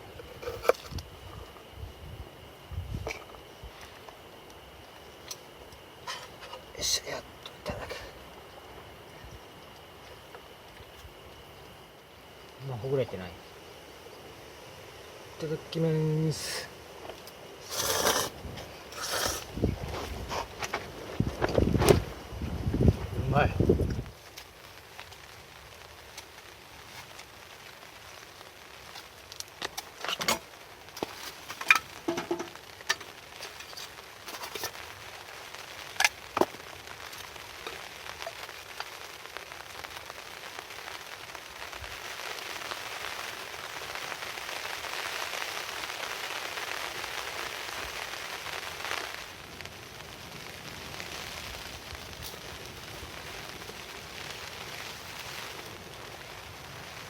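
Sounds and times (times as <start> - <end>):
heavy rain falling: 23.4 - 57.0.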